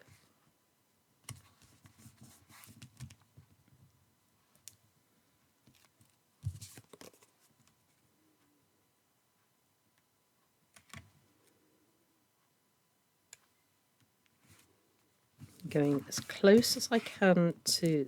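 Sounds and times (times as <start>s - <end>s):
paper rustling: 15.4s - 17.2s.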